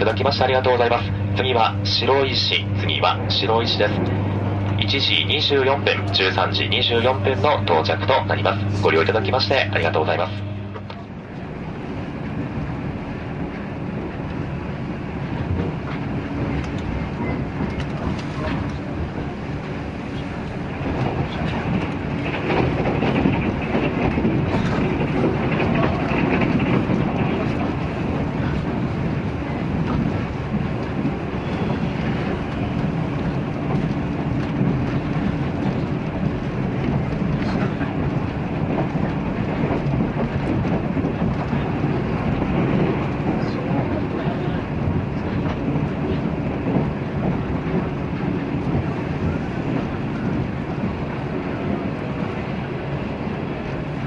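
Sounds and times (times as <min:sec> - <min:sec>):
train wheels rumbling on rail: 0:00.0 - 0:54.0
low steady hum: 0:00.1 - 0:12.6.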